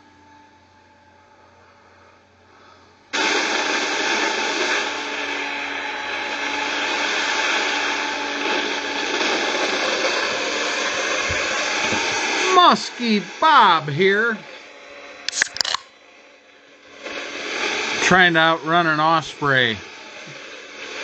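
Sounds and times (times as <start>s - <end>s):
electric model plane motor whine: 0.0s - 2.3s, 4.2s - 13.0s.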